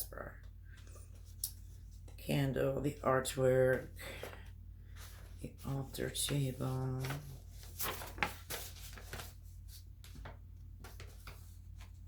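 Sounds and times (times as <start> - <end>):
low steady hum: 0.0 - 12.0
rustling of items: 3.3 - 12.0.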